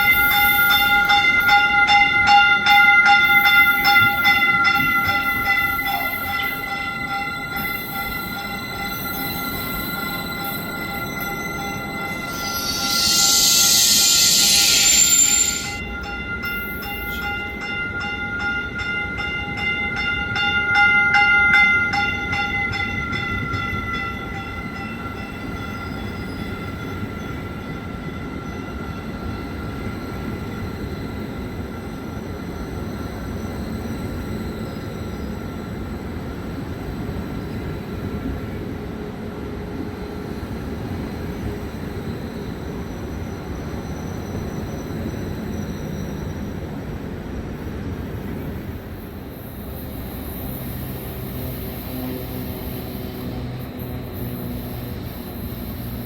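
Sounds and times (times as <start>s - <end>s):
crossing bell ringing: 0.0s - 30.9s
train wheels rumbling on rails: 0.0s - 56.0s.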